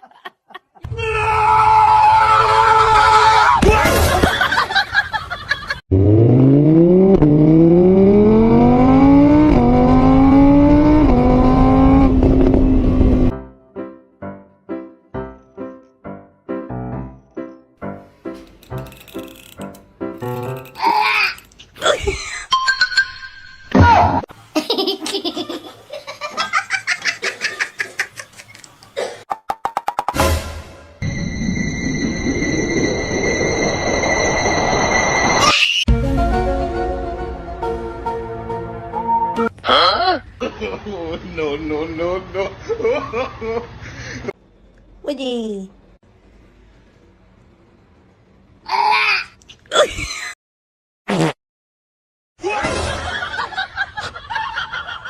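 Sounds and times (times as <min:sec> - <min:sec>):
car engine accelerating: 0:05.9 - 0:13.3
laughter in quick bursts: 0:24.5 - 0:28.7.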